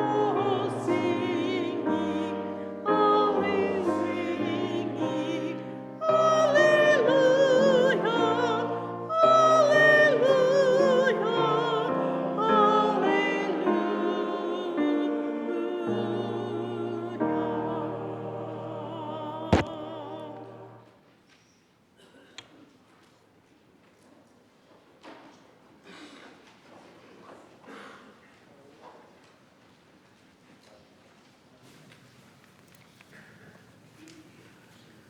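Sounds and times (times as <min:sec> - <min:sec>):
vocal ensemble singing: 0:00.0 - 0:20.9.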